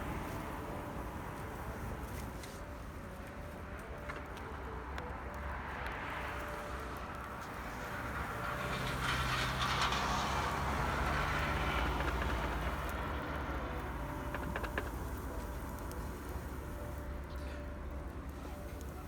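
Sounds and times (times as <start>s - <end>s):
vehicle passing: 5.4s - 19.0s.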